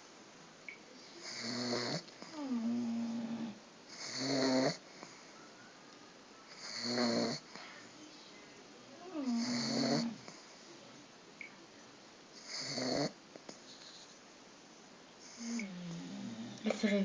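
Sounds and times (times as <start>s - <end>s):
dog snoring: 1.2s - 5.3s, 6.5s - 7.6s, 9.0s - 10.5s, 12.4s - 14.1s, 15.2s - 16.7s.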